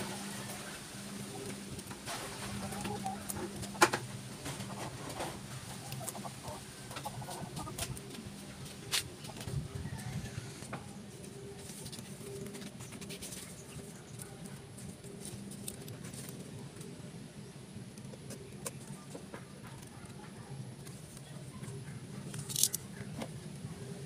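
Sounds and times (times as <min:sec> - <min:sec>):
birds cooing: 0:00.0 - 0:15.2.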